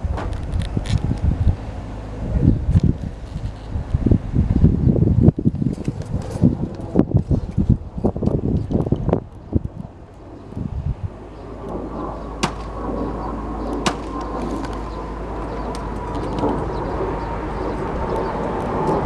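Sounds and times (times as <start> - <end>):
machine humming: 0.0 - 19.0
faint whine sinking in pitch: 6.2 - 19.0
sharp knocks: 12.4 - 13.0, 13.7 - 15.0.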